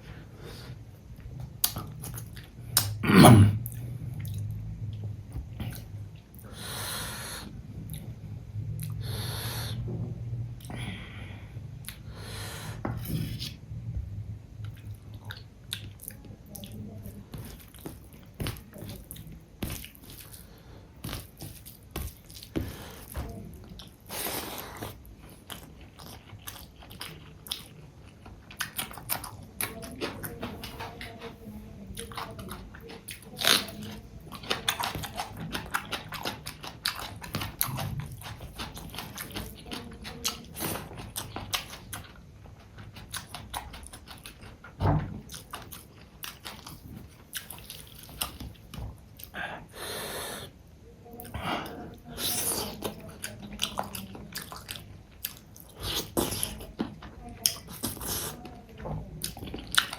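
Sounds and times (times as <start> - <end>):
person chewing and biting: 17.3 - 30.8, 32.0 - 42.1, 42.8 - 44.7.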